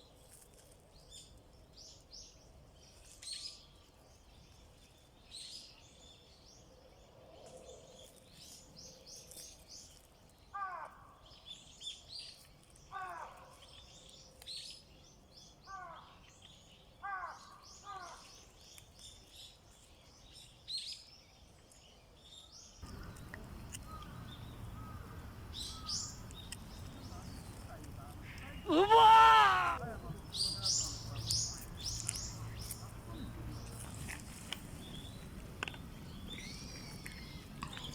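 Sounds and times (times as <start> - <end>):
small birds chirping: 11.2 - 37.9
bird falling calls: 22.8 - 29.8.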